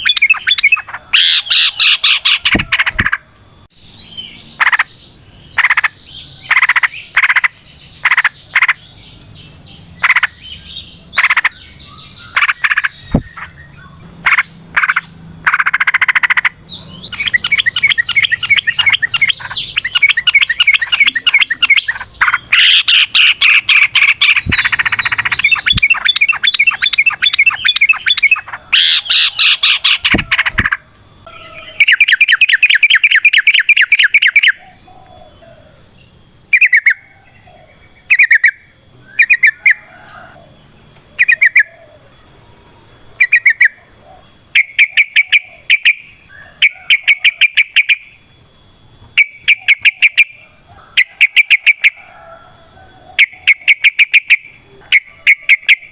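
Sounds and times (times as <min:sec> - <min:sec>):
bird singing bubbling notes: 0:09.8 - 0:34.6.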